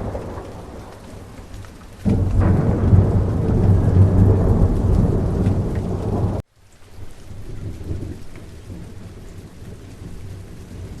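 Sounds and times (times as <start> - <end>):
thunder rumbling: 0.0 - 6.4
rain: 0.0 - 11.0.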